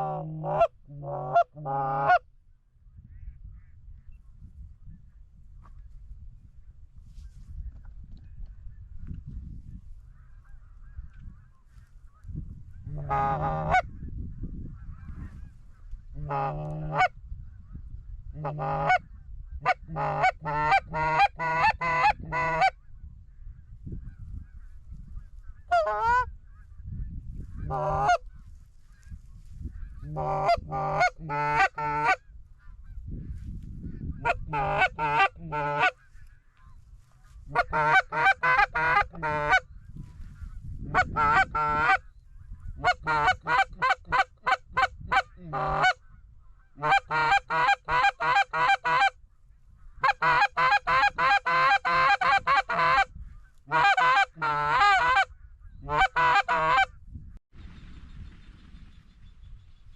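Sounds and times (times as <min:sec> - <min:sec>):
geese honking: 0:00.0 - 0:02.2, 0:12.8 - 0:13.9, 0:14.8 - 0:17.1, 0:18.4 - 0:19.0, 0:19.6 - 0:22.8, 0:25.6 - 0:26.3, 0:27.6 - 0:28.4, 0:29.7 - 0:32.8, 0:34.0 - 0:42.1, 0:42.8 - 0:46.0, 0:46.6 - 0:49.2, 0:50.0 - 0:56.9.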